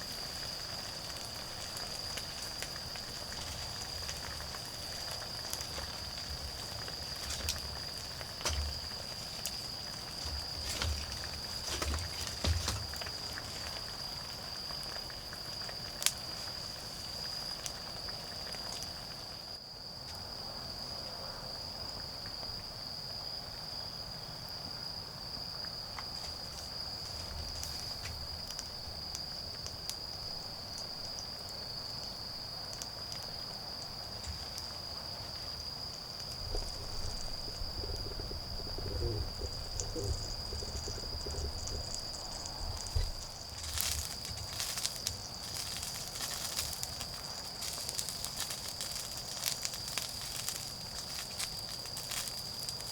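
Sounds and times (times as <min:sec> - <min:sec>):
wood fire crackling and popping: 0:00.0 - 0:19.4, 0:25.7 - 0:52.9
insects chirring: 0:00.0 - 0:52.9
rustling and handling noises: 0:06.8 - 0:13.9, 0:36.4 - 0:52.9
low thuds: 0:36.4 - 0:44.6.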